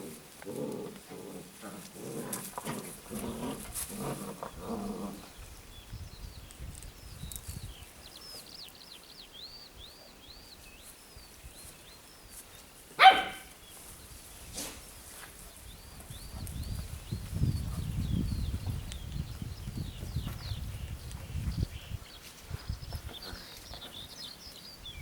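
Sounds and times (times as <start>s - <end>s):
dog barking: 13.0s - 13.5s.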